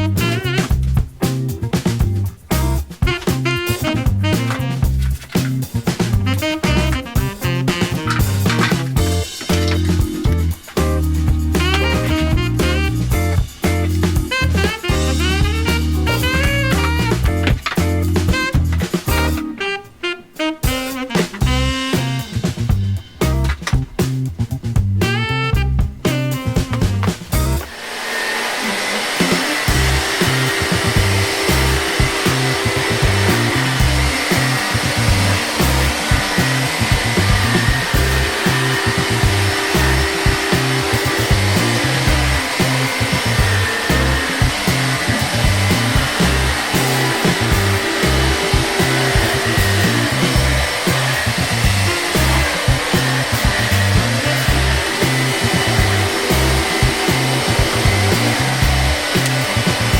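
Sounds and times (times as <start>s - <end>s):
background music with bass beat: 0.0s - 20.0s, 20.6s - 27.7s, 29.7s - 59.9s
vacuum cleaner running: 6.0s - 19.8s, 27.4s - 59.9s.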